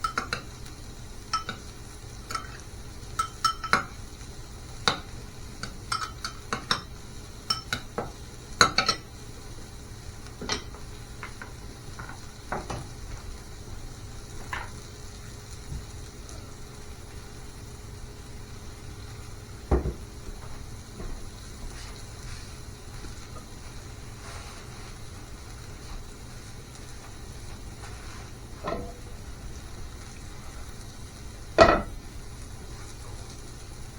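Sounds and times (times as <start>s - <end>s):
kitchen utensils clinking: 0.0s - 0.5s, 1.3s - 1.7s, 3.2s - 3.9s, 5.9s - 6.9s, 28.6s - 29.2s, 31.6s - 32.0s.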